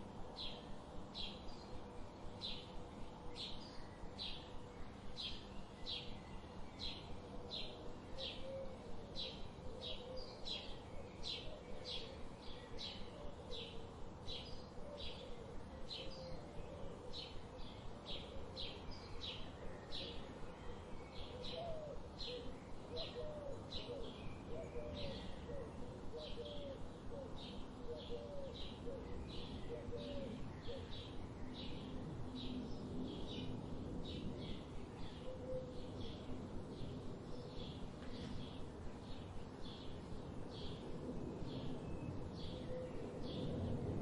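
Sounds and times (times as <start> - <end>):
steady outdoor hiss: 0.0 - 44.0.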